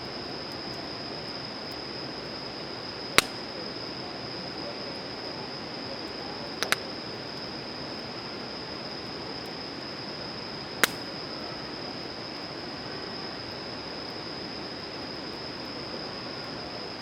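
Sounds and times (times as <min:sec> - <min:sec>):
campfire hissing and popping: 0:00.2 - 0:04.0, 0:06.4 - 0:07.4, 0:09.3 - 0:12.8.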